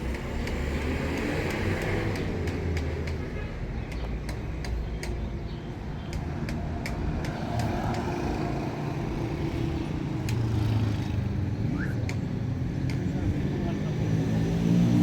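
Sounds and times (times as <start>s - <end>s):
sharp clicks: 0.0s - 8.4s, 10.2s - 10.6s
vehicle engine hum and road noise: 0.0s - 15.0s.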